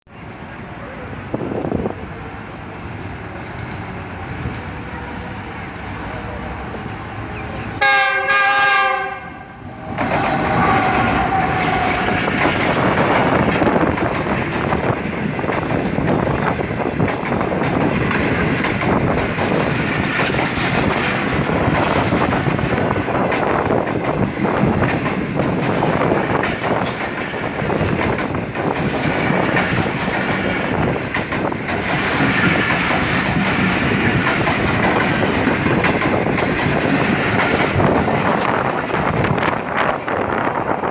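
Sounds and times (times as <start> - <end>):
train rumble: 0.1 - 40.9
locomotive horn blast: 7.8 - 12.3
train wheels clattering over rail joints: 9.8 - 40.9.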